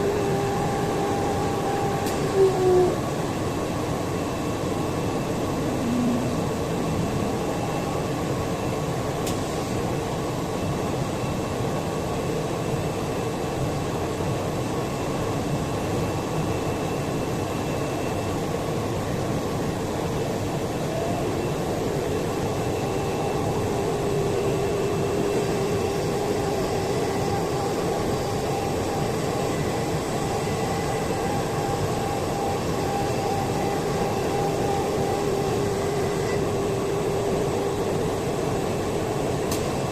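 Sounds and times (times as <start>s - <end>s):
cnc router with spindle whine: 0.0s - 39.9s.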